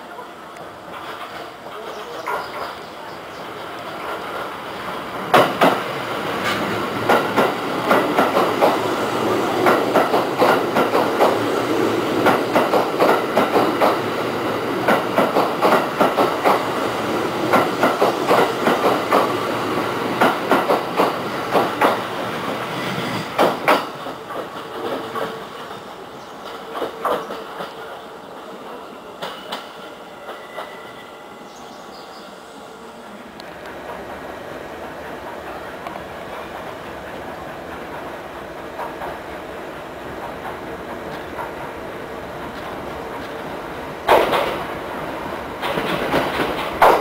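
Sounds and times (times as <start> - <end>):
train rolling rumble: 0.2 - 47.0
train wheels clacking over rail joints: 0.8 - 2.7, 5.2 - 8.9, 9.6 - 11.4, 12.2 - 16.7, 17.4 - 19.5, 20.1 - 22.1, 22.9 - 28.0, 35.0 - 41.8, 44.0 - 44.8, 45.6 - 47.0.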